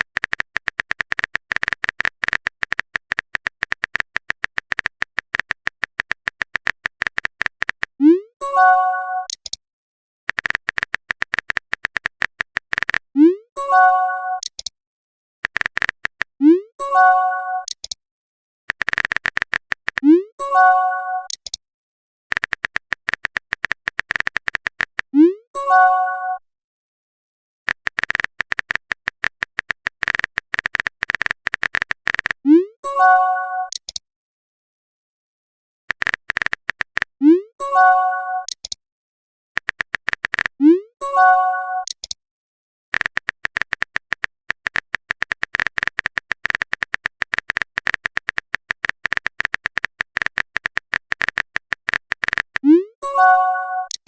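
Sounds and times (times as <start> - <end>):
rapid typing clicks: 0.0 - 8.0, 10.3 - 13.1, 15.4 - 16.4, 18.7 - 20.1, 22.3 - 25.1, 27.7 - 32.4, 35.9 - 37.2, 39.6 - 40.6, 42.9 - 52.7
notification chime: 53.0 - 53.9.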